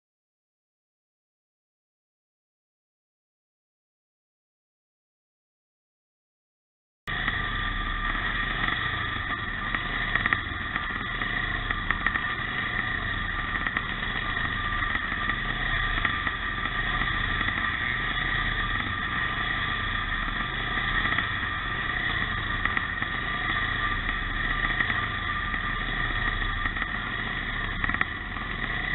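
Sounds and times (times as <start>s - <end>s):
motorcycle engines droning: 7.1s - 28.9s.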